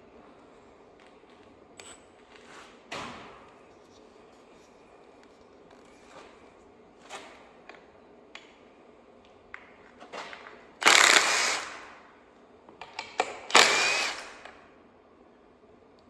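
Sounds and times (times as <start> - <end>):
ratchet wrench loud bursts: 10.8 - 11.9, 13.5 - 14.5.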